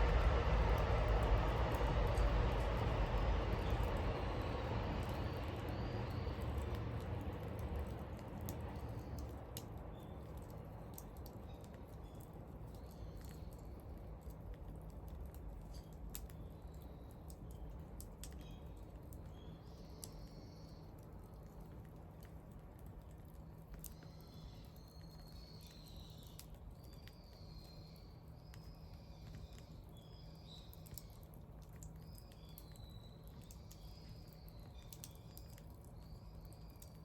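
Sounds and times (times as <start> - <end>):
low rumble: 0.0 - 9.8
bonfire crackling and popping: 0.0 - 12.0
faint bird chirps: 18.4 - 20.9.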